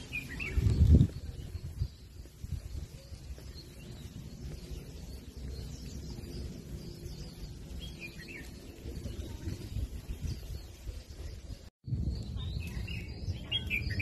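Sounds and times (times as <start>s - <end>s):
low rumble on microphone: 0.0s - 14.0s.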